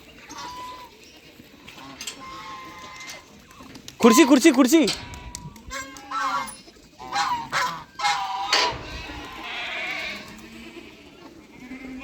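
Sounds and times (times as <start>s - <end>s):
goats bleating: 1.6s - 3.3s, 4.0s - 12.0s.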